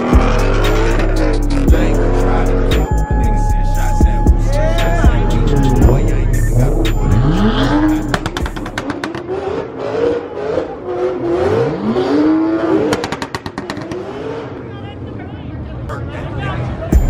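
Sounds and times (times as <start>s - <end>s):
exhaust crackles: 0.0s - 3.9s, 4.5s - 11.2s
car engine revving: 0.0s - 14.7s.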